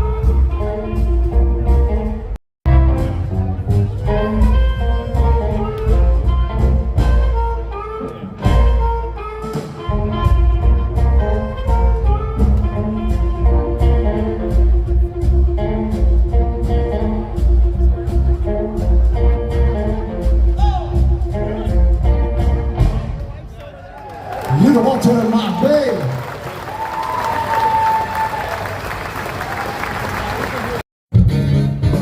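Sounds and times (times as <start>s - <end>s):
blues band playing: 0.0s - 23.6s, 31.1s - 32.0s.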